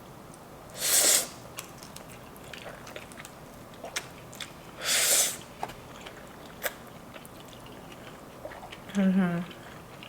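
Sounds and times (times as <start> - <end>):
loud noodle slurp: 0.8 - 1.3
wet chewing clicks and smacks: 1.6 - 4.6, 5.6 - 10.0.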